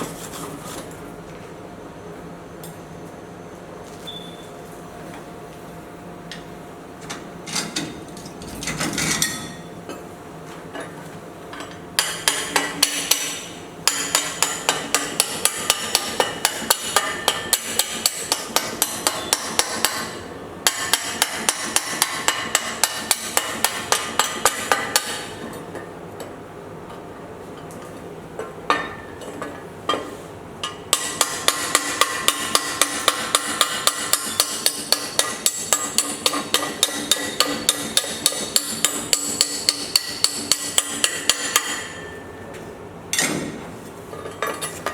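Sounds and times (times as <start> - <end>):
hammer striking metal: 12.0 - 25.5, 30.6 - 42.4.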